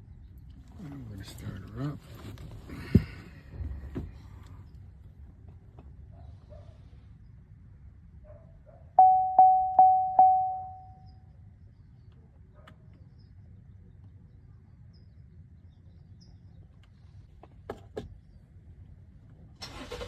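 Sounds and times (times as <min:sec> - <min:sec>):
car warning chime tones: 0:09.0 - 0:11.1.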